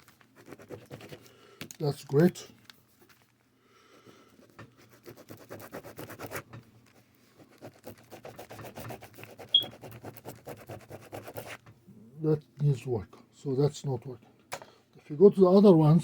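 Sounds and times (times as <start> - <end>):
pen scribbling on paper: 4.8 - 6.4, 7.5 - 11.6
pen squeak: 9.4 - 9.8.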